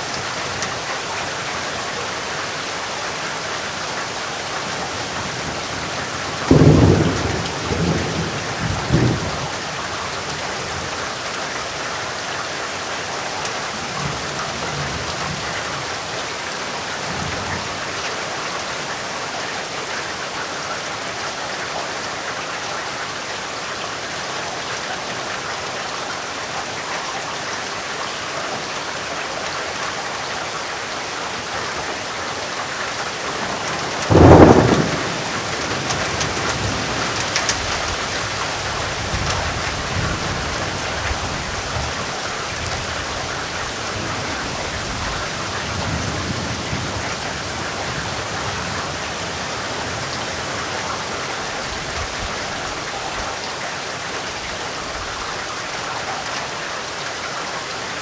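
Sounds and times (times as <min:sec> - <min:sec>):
steady rain falling: 0:00.0 - 0:58.0
low thunder rumbles: 0:05.3 - 0:10.9, 0:33.3 - 0:42.2
thunder crack: 0:06.5 - 0:09.4, 0:33.5 - 0:37.7.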